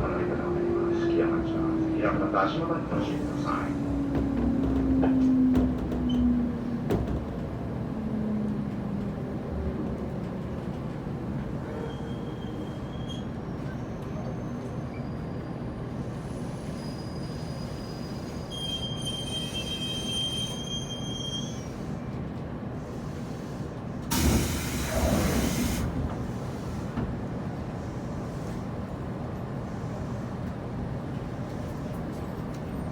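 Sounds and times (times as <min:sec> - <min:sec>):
train wheels rumbling on rail: 0:00.0 - 0:32.9
high wheel squeal: 0:16.7 - 0:21.8.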